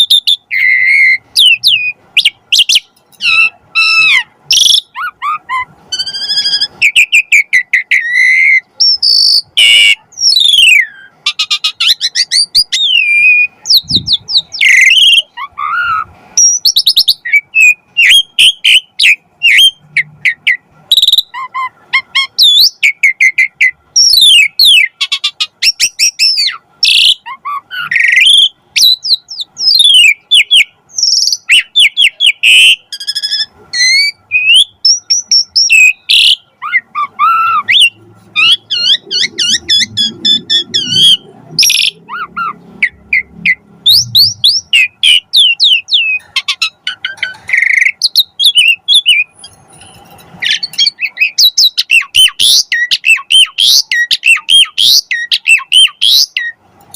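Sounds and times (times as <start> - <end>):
starling singing: 0.0 - 56.6.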